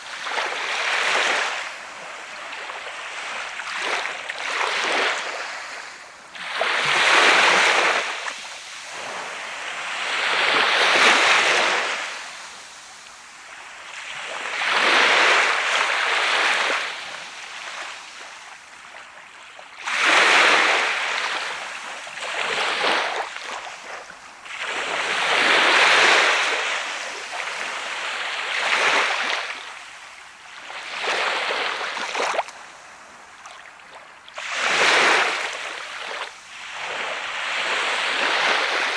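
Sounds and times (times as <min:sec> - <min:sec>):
sea waves breaking on beach: 0:19.8 - 0:38.9.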